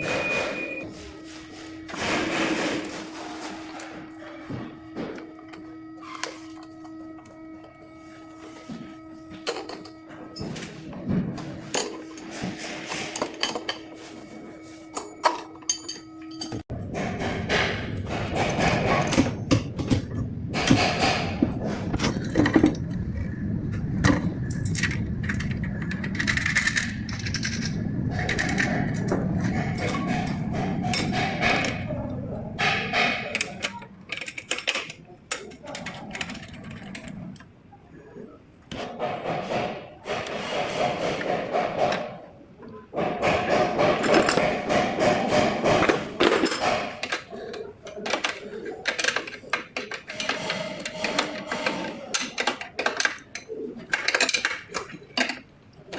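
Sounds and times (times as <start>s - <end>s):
metal tools clicking and knocking: 14.9s - 22.9s, 24.0s - 37.5s, 43.0s - 55.5s.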